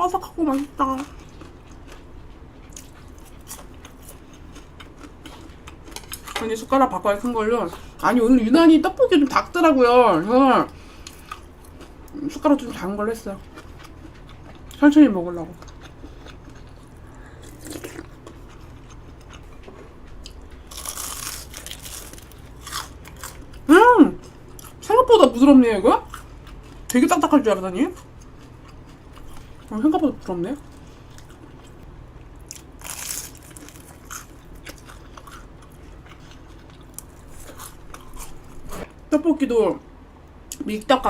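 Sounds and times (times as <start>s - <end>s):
loud food crunch: 0.4s - 6.4s, 15.5s - 24.9s, 27.9s - 39.0s
person biting and chewing: 15.6s - 23.7s, 32.4s - 39.0s.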